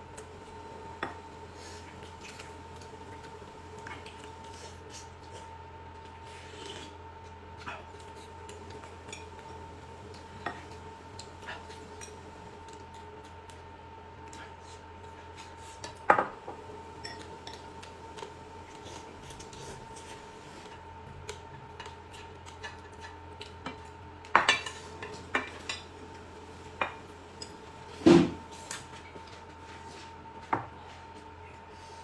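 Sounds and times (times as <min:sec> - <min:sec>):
dishes and utensils clinking: 0:16.1 - 0:17.7, 0:23.7 - 0:28.5
dishes clattering: 0:24.4 - 0:25.9.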